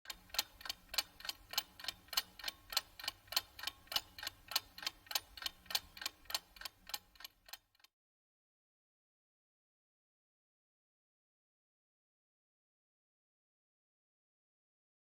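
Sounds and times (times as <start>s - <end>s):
clock ticking: 0.1s - 7.9s.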